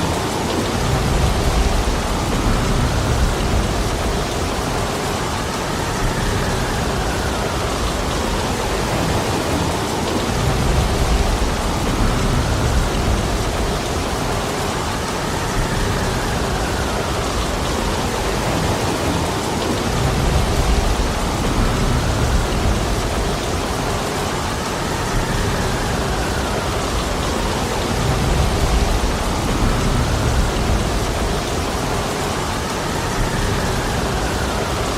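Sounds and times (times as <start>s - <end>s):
heavy rain pouring: 0.0s - 34.9s
wind: 0.0s - 34.9s
low rumbling: 25.2s - 32.2s.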